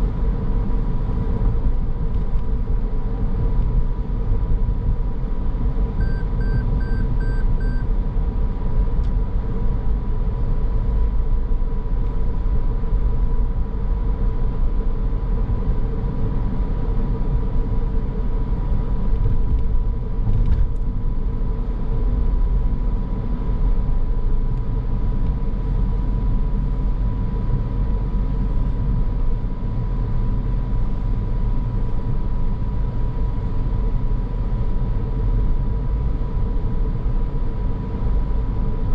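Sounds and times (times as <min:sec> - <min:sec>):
car road and engine rumble: 0:00.0 - 0:38.9
short beeps: 0:06.0 - 0:07.9.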